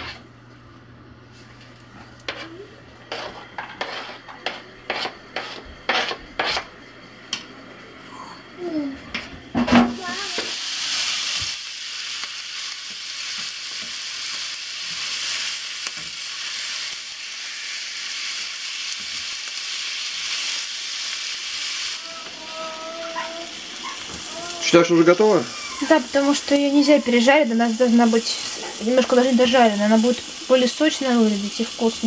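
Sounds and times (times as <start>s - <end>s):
spatula scraping and knocking: 2.2s - 6.7s
food sizzling in a frying pan: 9.6s - 32.0s.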